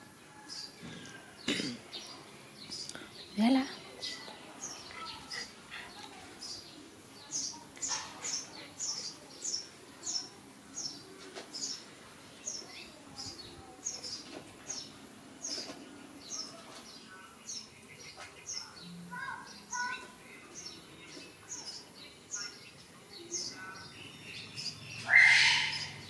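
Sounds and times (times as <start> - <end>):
small bird chirping: 1.9 - 26.0.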